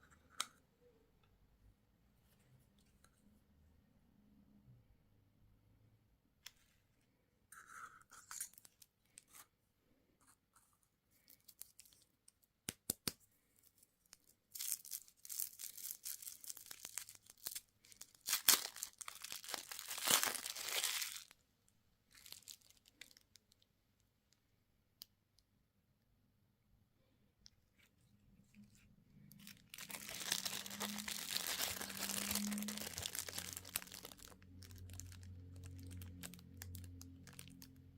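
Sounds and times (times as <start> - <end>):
candy wrapper tearing and crinkling: 14.1 - 21.3, 22.1 - 23.6, 29.3 - 37.8.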